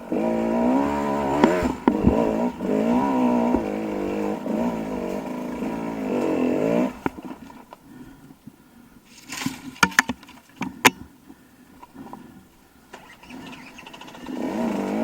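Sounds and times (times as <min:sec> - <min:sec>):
dirt bike engine revving: 0:00.0 - 0:07.7, 0:12.0 - 0:15.0
sharp knocks: 0:01.3 - 0:04.0.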